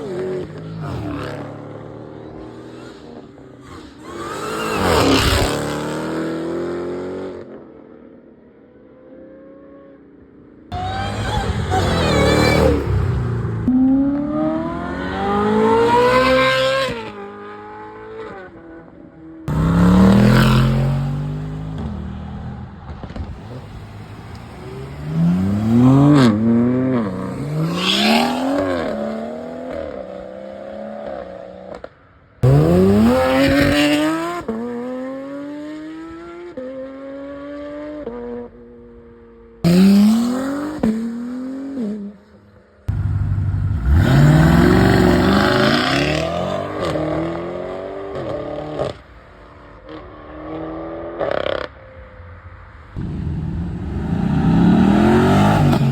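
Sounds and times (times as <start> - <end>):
sports cars accelerating hard: 10.7 - 18.8, 19.4 - 31.8, 32.4 - 38.3, 39.7 - 42.0, 42.9 - 49.1, 53.0 - 55.9.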